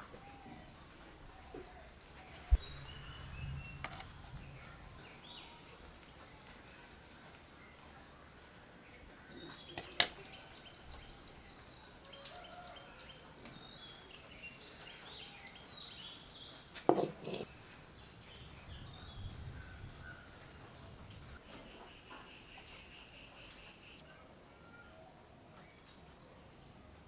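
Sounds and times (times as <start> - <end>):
birds chirping: 0.2 - 6.9, 8.8 - 24.0.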